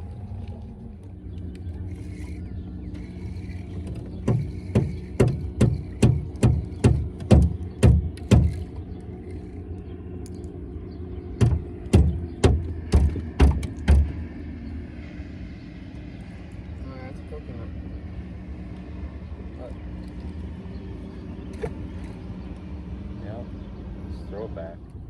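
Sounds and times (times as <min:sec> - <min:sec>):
steady low rumble: 0:00.0 - 0:25.0
sharp knocks on boat: 0:03.8 - 0:08.7, 0:11.4 - 0:14.3.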